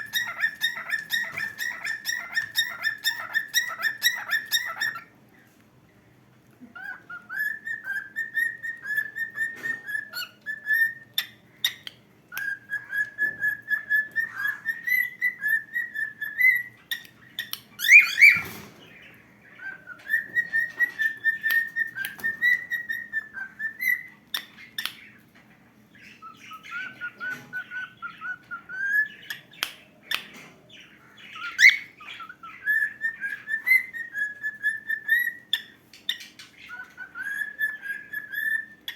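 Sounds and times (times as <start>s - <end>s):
cockatiel whistling: 0.0s - 5.1s, 6.8s - 18.6s, 19.6s - 25.0s, 26.2s - 29.6s, 31.3s - 38.9s.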